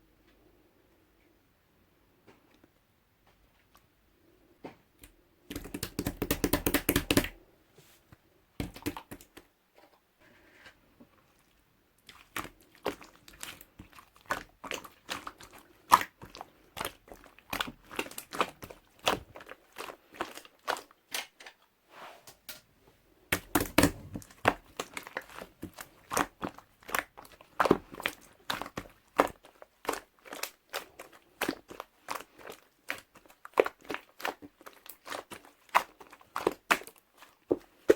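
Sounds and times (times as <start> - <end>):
slime popping and crackling: 5.5 - 7.3, 8.6 - 9.4, 12.0 - 20.9, 23.3 - 37.9.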